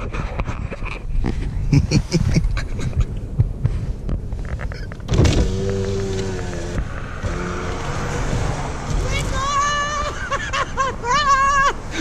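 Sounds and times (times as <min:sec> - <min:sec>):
electric window motor humming: 0:05.1 - 0:09.5.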